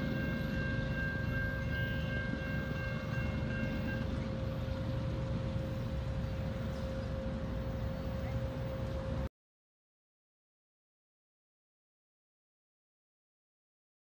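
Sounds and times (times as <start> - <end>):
crossing warning bell ringing: 0.0 - 9.2
freight train rumbling: 0.0 - 9.3.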